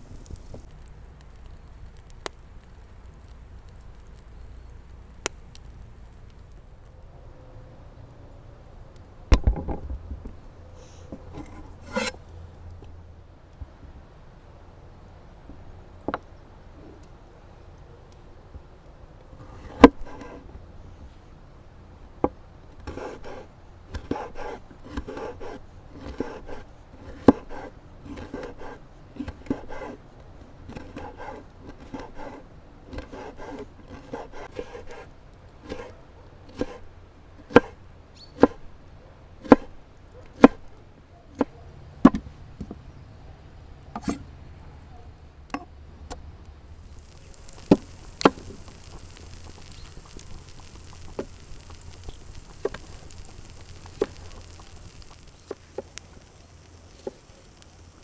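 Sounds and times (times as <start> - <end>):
steady hiss: 0.0 - 7.0, 46.7 - 58.0
knife slicing on wooden board: 11.4 - 12.2, 30.7 - 35.9
knife chopping: 11.8 - 12.1, 36.5 - 36.8.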